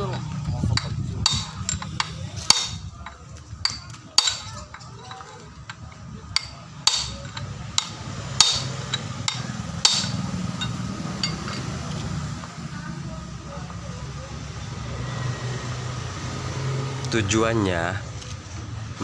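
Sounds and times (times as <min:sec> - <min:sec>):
hammer striking steel: 0:00.0 - 0:05.4, 0:06.3 - 0:11.8
low steady rumble: 0:00.0 - 0:15.0.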